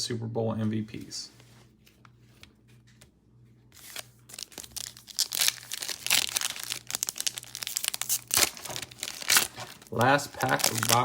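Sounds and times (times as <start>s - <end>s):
wrapper crinkling and tearing: 3.8s - 11.0s.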